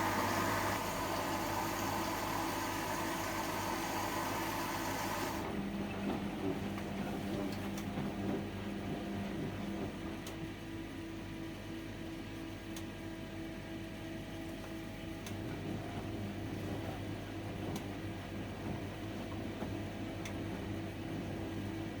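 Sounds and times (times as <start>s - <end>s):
washing machine hum: 0.0s - 22.0s.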